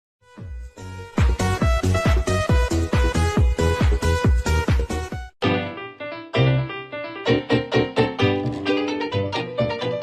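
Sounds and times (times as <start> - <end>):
kick drum beat: 1.2 - 5.3.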